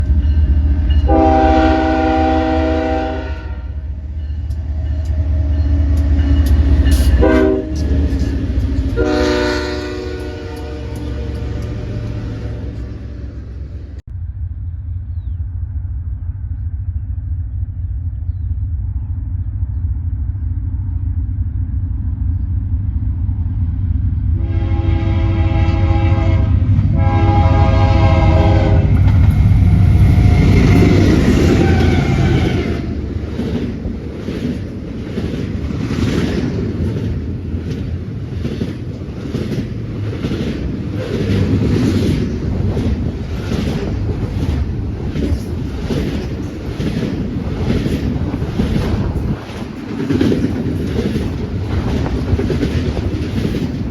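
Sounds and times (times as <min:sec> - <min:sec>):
diesel train engine rumble: 0:00.0 - 0:53.9
train air horn blasts: 0:01.1 - 0:03.8, 0:07.0 - 0:08.0, 0:08.9 - 0:13.3, 0:24.4 - 0:29.0, 0:29.6 - 0:33.0
wheels clacking over rail joints: 0:04.0 - 0:13.9, 0:28.9 - 0:53.9.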